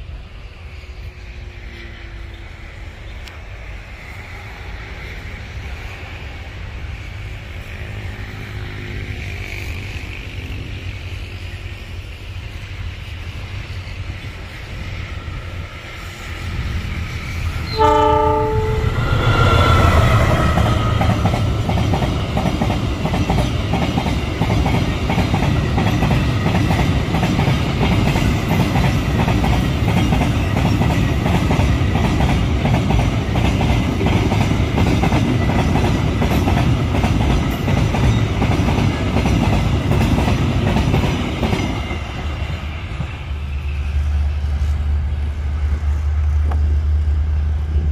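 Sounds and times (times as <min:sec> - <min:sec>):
freight train wheels rumbling: 0:00.0 - 0:47.9
locomotive horn blast: 0:17.7 - 0:21.7.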